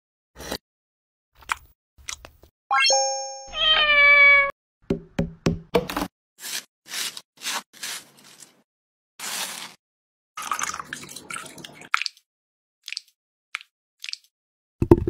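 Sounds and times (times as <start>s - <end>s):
cat meowing: 3.5s - 4.5s.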